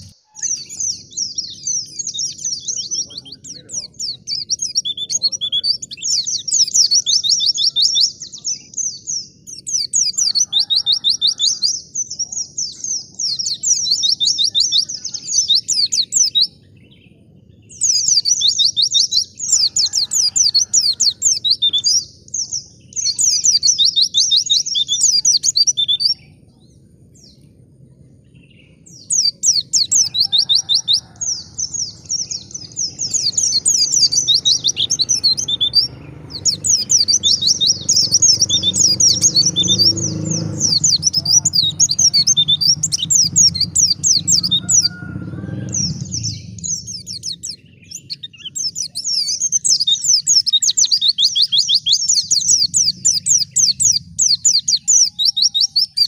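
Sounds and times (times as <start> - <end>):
bird twittering song: 0.0 - 56.0
low background rumble: 11.4 - 56.0.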